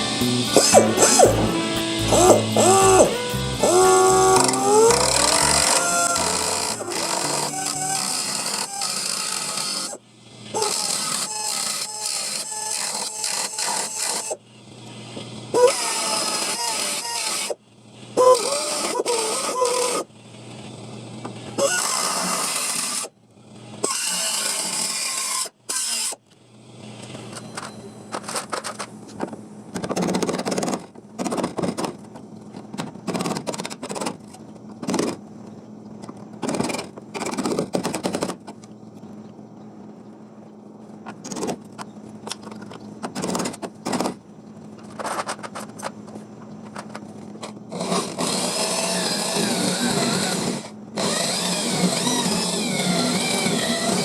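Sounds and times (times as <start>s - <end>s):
steady low hum: 0.0s - 8.8s, 30.6s - 54.0s
power tool on sheet metal: 0.0s - 27.4s, 47.7s - 54.0s.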